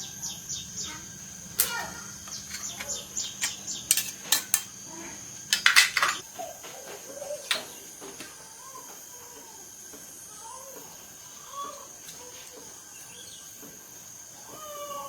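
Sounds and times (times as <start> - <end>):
metal parts and tools clinking: 1.6 - 4.8, 5.5 - 6.2.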